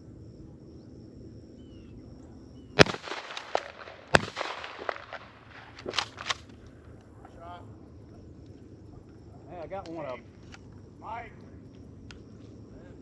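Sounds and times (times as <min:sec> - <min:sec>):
faint gunshot pops: 0:02.8 - 0:06.4
loud shotgun shots: 0:02.8 - 0:06.5.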